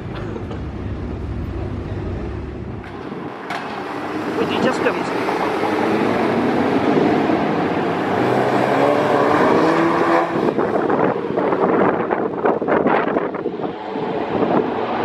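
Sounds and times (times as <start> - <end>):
car engine revving: 3.7 - 11.5.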